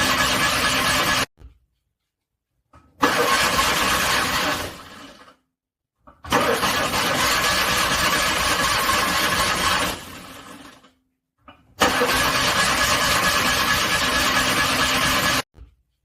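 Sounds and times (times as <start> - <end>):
car engine cranking: 3.0 - 4.9, 6.3 - 10.1, 11.8 - 14.6.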